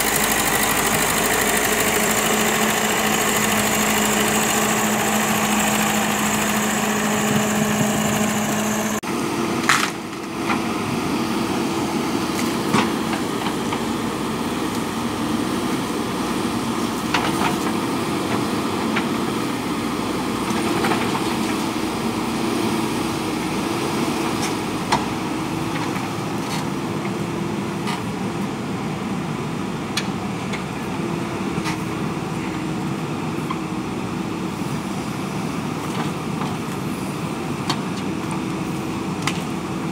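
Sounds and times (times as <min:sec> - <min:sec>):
diesel engine running: 0:00.0 - 0:25.6.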